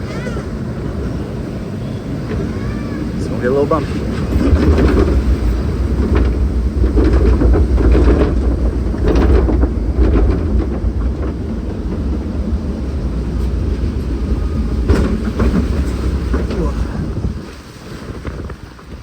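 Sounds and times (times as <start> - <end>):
boat rattling and clanking on track: 0.0 - 19.0
low rumble: 0.6 - 18.6
knocks: 14.8 - 16.8.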